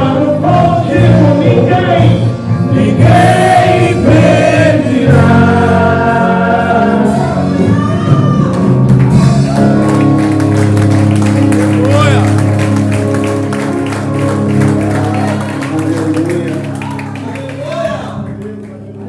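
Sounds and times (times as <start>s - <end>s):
choir singing gospel song: 0.0s - 8.4s
instrumental accompaniment: 0.0s - 19.0s.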